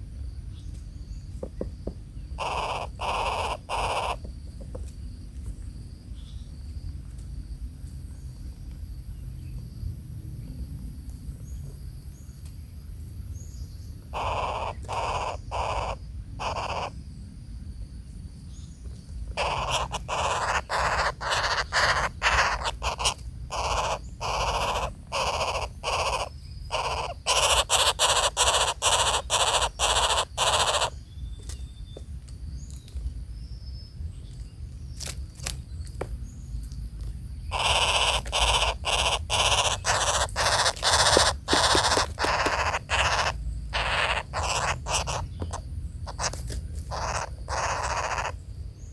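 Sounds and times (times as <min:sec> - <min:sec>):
harsh rasping bird calls: 0:01.5 - 0:04.8, 0:14.0 - 0:17.0, 0:19.3 - 0:31.7, 0:36.2 - 0:48.9.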